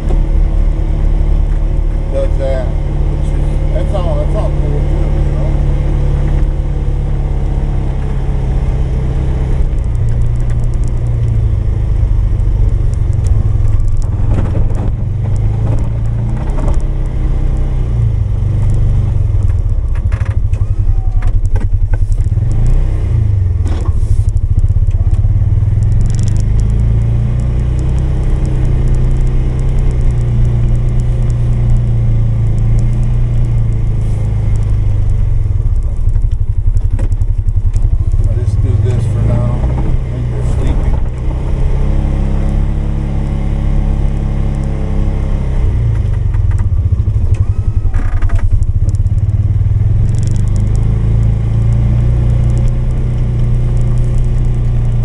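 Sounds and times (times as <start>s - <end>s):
engine running under load: 0.0s - 55.0s.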